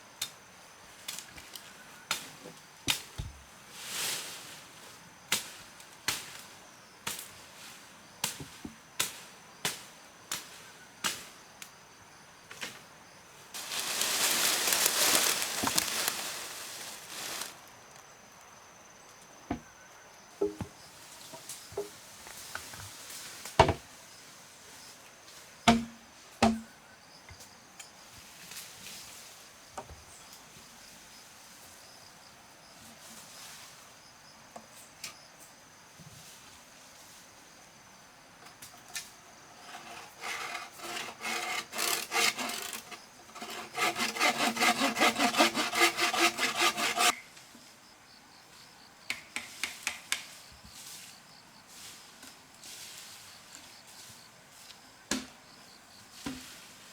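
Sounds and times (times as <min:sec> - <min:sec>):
sharp knocks: 0:20.4 - 0:20.8, 0:25.7 - 0:26.6
hand saw cutting wood: 0:39.5 - 0:47.2.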